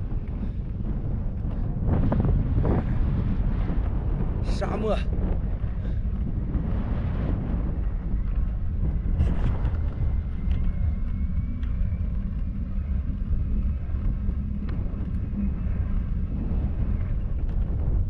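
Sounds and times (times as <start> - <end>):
wind buffeting microphone: 0.0 - 18.0
faint thin whine: 6.4 - 18.0.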